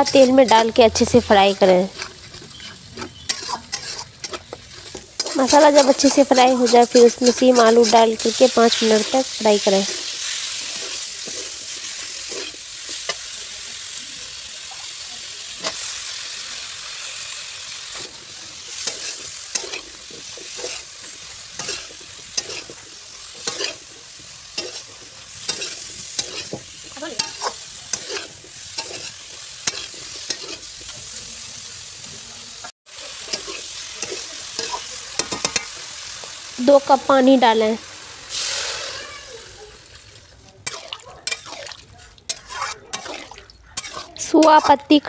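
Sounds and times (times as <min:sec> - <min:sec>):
metal spatula scraping pan: 0:00.0 - 0:13.2, 0:18.0 - 0:31.0, 0:33.0 - 0:35.8, 0:40.6 - 0:45.0
food frying hiss: 0:00.0 - 0:45.0.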